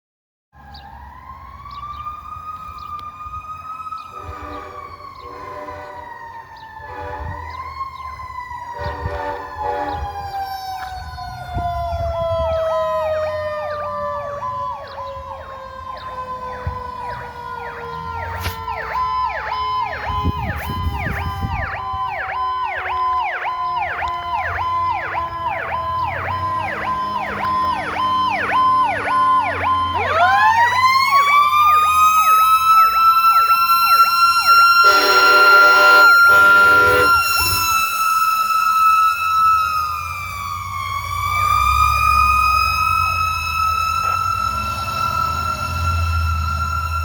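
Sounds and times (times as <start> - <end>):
mechanical siren wail: 0.6 - 47.0
electronic siren yelp: 0.7 - 47.0
fire truck horn blast: 4.1 - 6.2, 6.8 - 7.6, 8.7 - 10.3, 33.7 - 37.7.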